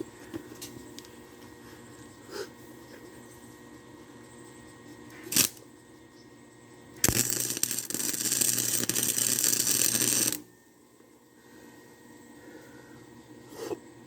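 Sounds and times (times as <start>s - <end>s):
welding arc crackling: 5.3s - 5.6s, 7.0s - 10.5s.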